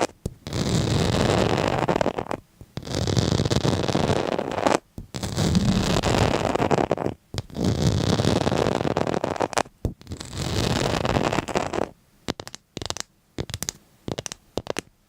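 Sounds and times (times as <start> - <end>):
scratchy scraping strokes: 0.0 - 11.9.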